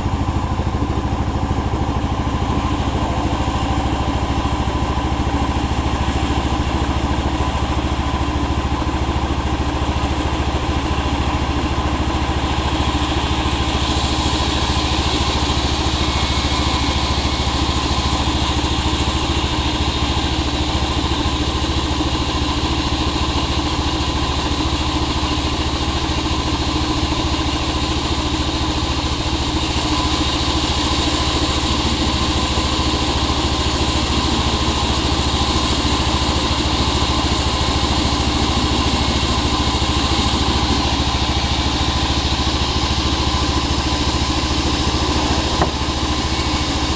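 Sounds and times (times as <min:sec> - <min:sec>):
power saw engine running: 0:00.0 - 0:46.9.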